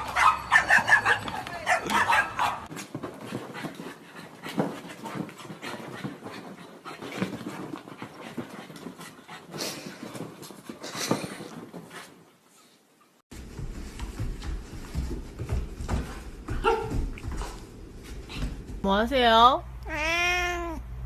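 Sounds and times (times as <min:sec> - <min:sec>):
dog panting: 0:02.8 - 0:12.7.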